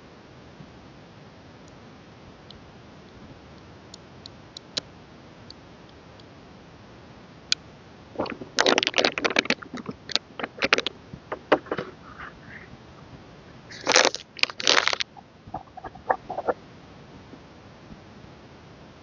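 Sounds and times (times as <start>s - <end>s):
packaging crinkling and crackling: 8.2s - 12.6s, 13.7s - 16.5s.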